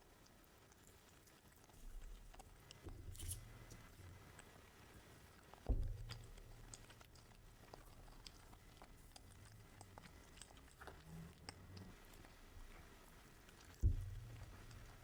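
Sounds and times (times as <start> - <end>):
person chewing food: 5.2 - 15.0
low thump: 5.7 - 6.4, 13.8 - 14.7.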